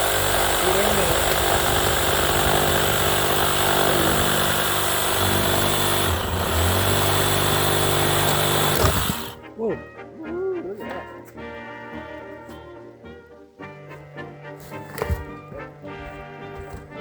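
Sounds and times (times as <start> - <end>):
motor engine running: 0.0 - 9.4.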